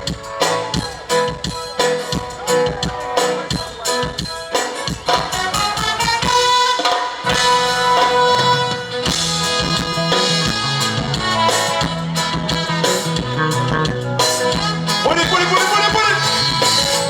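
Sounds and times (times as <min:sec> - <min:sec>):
band music with drums: 0:00.0 - 0:17.0
bass line: 0:07.3 - 0:17.0.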